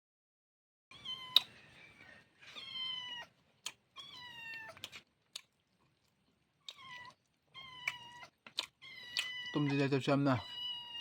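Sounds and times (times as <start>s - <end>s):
cat meowing: 0.9s - 1.5s, 2.5s - 4.8s, 6.6s - 11.0s.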